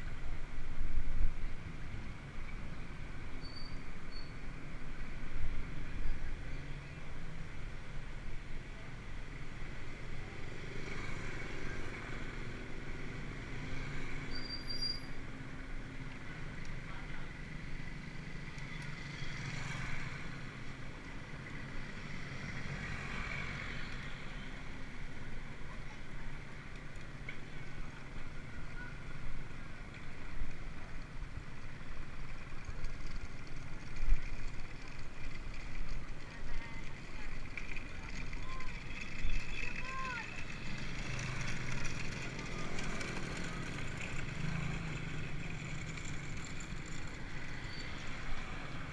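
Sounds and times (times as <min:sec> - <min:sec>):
bicycle road and wind noise: 0:00.0 - 0:48.9.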